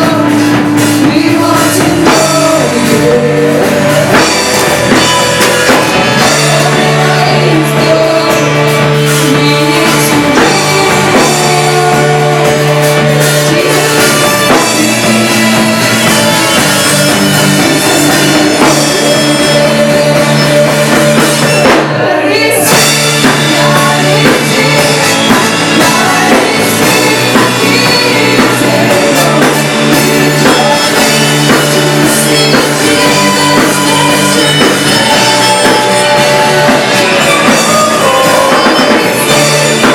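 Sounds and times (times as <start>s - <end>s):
bass guitar: 0.0s - 39.9s
drum kit: 0.0s - 39.9s
electric guitar: 0.0s - 39.9s
person singing: 0.0s - 39.9s.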